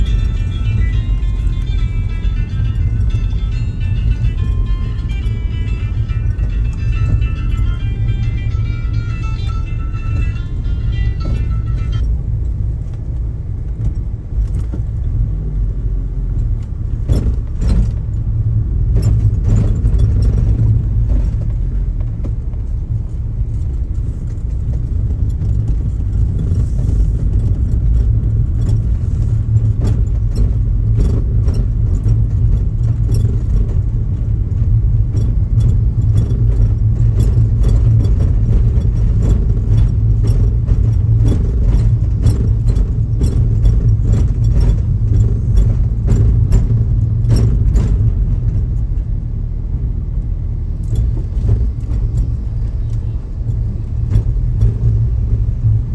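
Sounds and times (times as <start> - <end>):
helicopter cabin rumble: 0.0 - 55.9
small clicks and rattles: 18.9 - 49.1.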